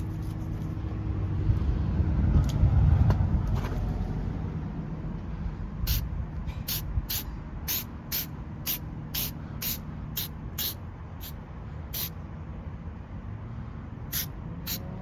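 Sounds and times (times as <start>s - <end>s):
low steady rumble: 0.0s - 15.0s
spray can hissing spurts: 6.7s - 11.4s, 14.1s - 14.9s.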